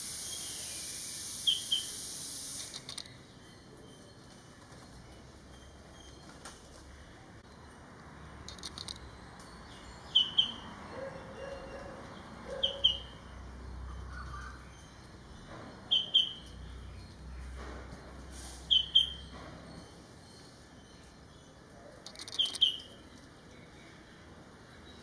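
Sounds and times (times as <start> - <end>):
bird double chirp: 15.9 - 16.4, 18.6 - 19.3, 22.1 - 23.0.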